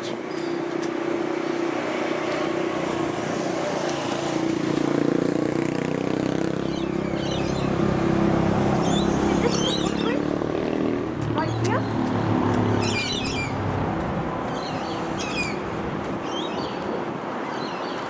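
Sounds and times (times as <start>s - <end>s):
vehicle passing with rumble: 1.8s - 16.0s.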